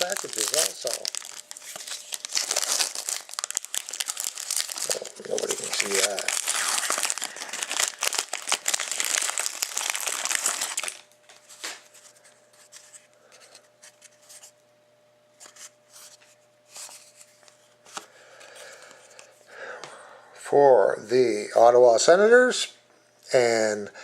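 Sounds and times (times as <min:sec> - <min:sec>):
card pack packaging crinkling and tearing: 0:00.0 - 0:14.5
cards rustling and clicking: 0:00.0 - 0:14.5.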